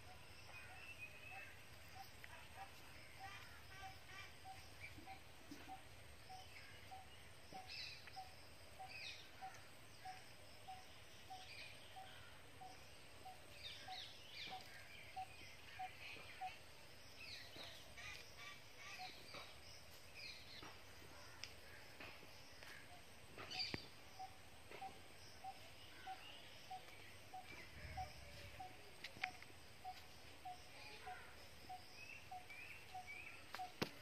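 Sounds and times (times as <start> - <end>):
faint bird chirps: 0.0 - 34.0.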